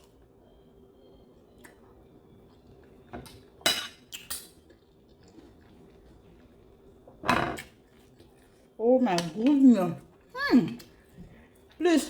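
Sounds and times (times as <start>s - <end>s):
cutlery clinking on dishes: 3.6s - 4.5s.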